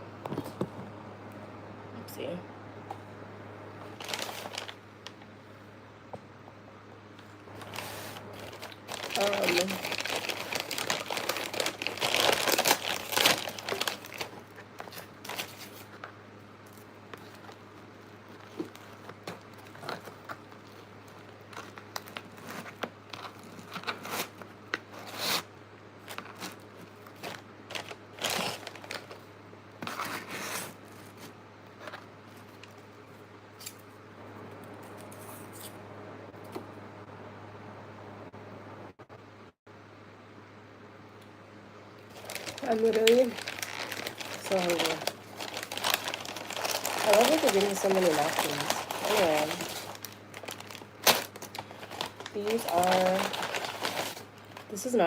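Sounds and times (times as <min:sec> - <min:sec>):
paper bag and wrappers rustling: 0:03.9 - 0:05.2, 0:07.5 - 0:29.2, 0:42.0 - 0:55.0.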